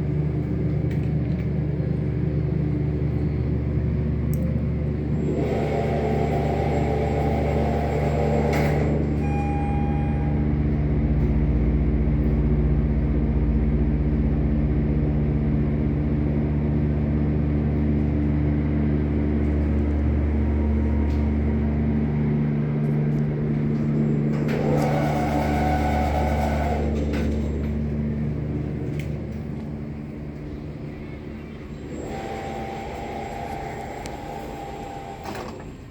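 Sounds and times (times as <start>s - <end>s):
elevator pump motor humming: 0.0s - 35.9s
short beep: 9.2s - 10.5s.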